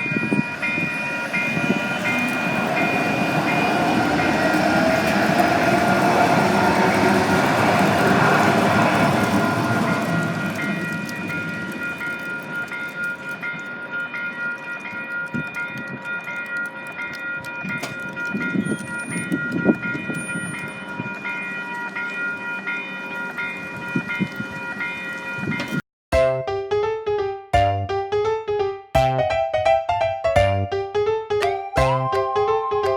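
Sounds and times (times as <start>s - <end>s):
train rumble and rail knocks: 0.0s - 13.4s
crossing warning bell ringing: 0.0s - 25.8s
piano music: 26.1s - 32.9s.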